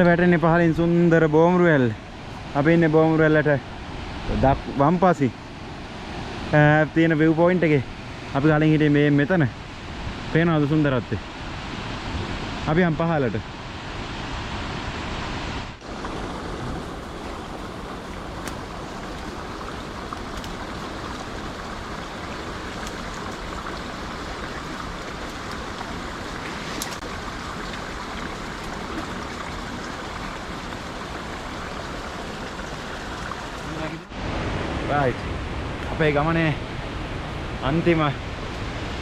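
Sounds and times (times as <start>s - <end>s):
waterfall rushing: 15.8s - 35.1s.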